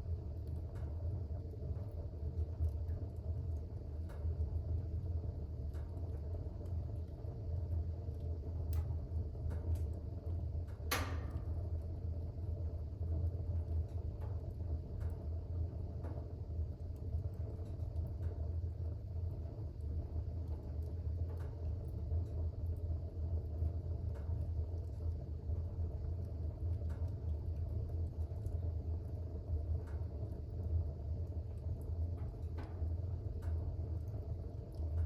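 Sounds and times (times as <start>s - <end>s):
fire crackles: 0.0s - 35.0s
fire rumbling in fireplace: 0.0s - 35.0s
fire pop: 10.7s - 12.0s.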